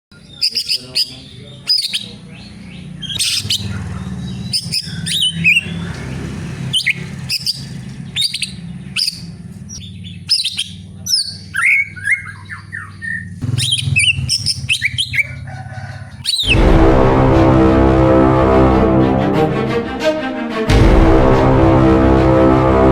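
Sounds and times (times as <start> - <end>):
bird chirping and whistling: 0.1 - 16.6
steady low hum: 0.1 - 20.0.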